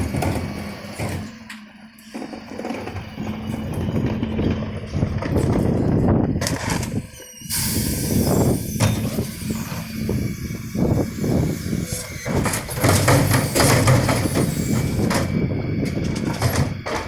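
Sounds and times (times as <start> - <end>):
bins knocking and clattering: 0.0 - 1.4, 12.3 - 17.0
refuse truck engine and hydraulics: 0.0 - 17.0
loud hiss of air: 7.4 - 12.6.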